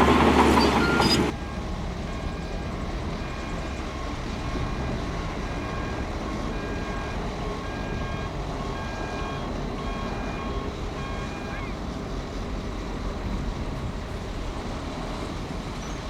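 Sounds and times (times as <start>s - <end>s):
reversing alarm beeping: 0.0s - 11.8s
diesel engine rumbling: 0.0s - 16.0s.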